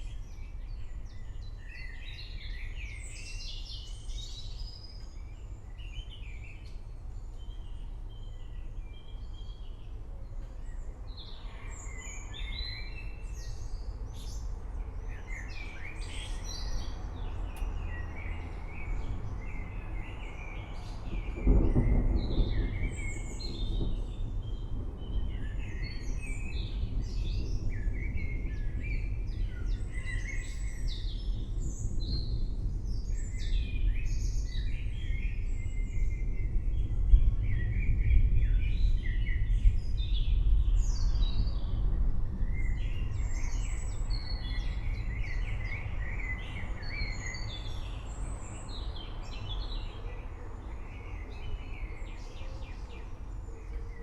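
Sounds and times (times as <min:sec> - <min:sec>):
forest birds chirping: 0:00.0 - 0:54.0
distant thunder rumbling: 0:18.9 - 0:47.0.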